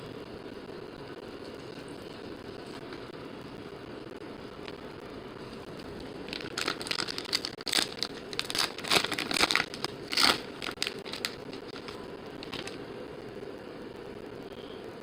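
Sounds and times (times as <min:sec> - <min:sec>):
low background hum: 0:00.0 - 0:15.0
foil wrappers tearing and crinkling: 0:06.2 - 0:12.8.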